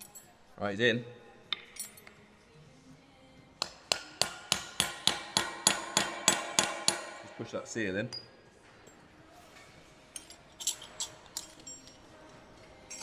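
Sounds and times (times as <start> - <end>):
hammer tapping on metal: 3.6 - 7.3.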